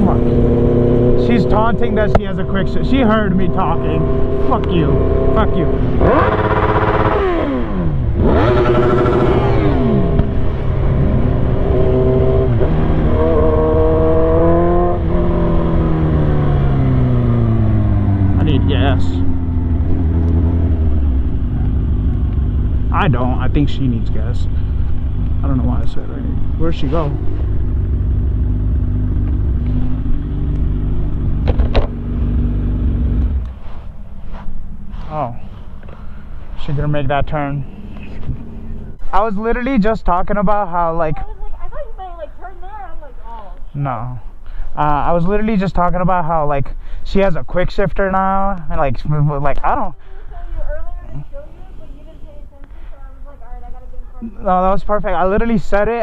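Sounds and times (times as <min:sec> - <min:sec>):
motorcycle engine accelerating: 0:00.0 - 0:41.7.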